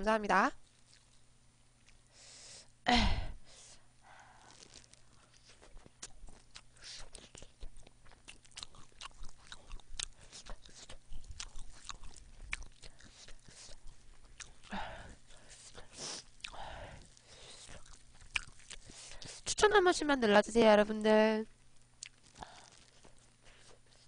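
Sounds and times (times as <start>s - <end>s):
chewing with mouth clicks: 0.6s - 2.1s, 4.5s - 19.5s, 21.5s - 24.0s.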